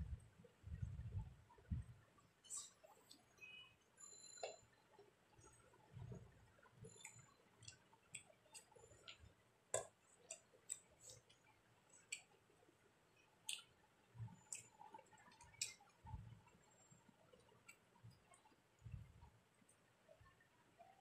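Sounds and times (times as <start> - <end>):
soft low thumps: 0.0 - 2.0, 16.0 - 16.4, 18.8 - 19.3
chewing and lip-smacking: 9.8 - 12.4, 14.4 - 16.7.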